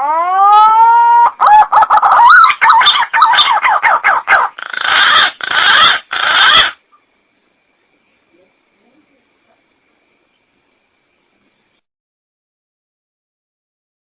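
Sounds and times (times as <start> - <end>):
pigeon calling: 0.0 - 6.9.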